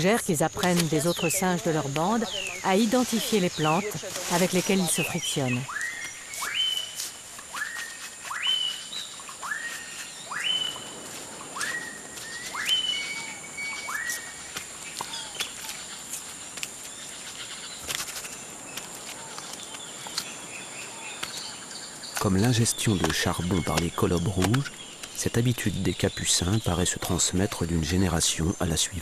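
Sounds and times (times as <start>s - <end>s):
high insect drone: 0.0s - 29.0s
bird whistling: 4.8s - 14.4s.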